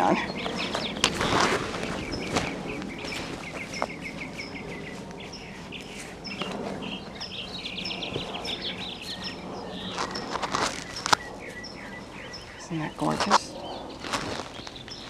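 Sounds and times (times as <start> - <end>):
songbirds chirping: 0.0 - 15.0
bird trill: 1.8 - 15.0.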